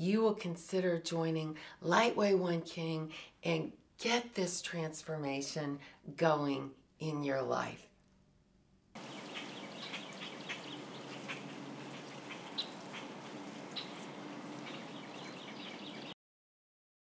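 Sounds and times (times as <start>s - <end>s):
steady outdoor hiss: 9.0s - 16.1s
birds chirping: 9.0s - 16.2s.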